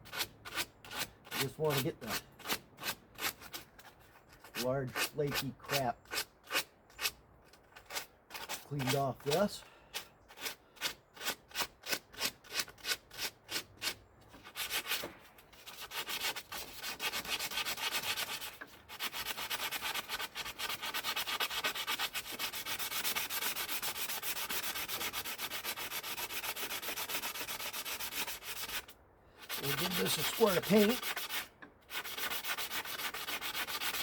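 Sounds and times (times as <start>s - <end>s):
abrasive scrubbing a car part: 2.8s - 34.0s.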